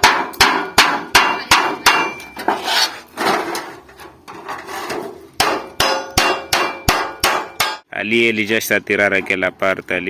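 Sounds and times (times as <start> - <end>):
hammer on sheet metal: 0.0 - 2.3, 5.4 - 7.9
rough rubbing on metal: 2.4 - 5.2.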